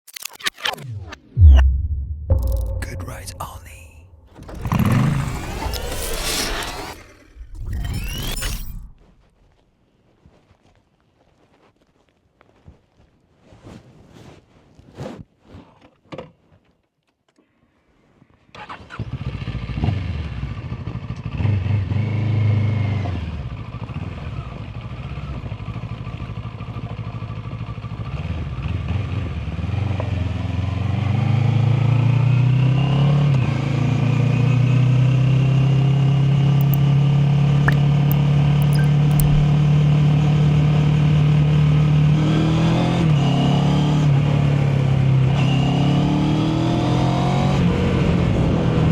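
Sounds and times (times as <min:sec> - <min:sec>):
motorcycle engine revving and idling: 0:04.4 - 0:07.8, 0:18.9 - 0:48.9.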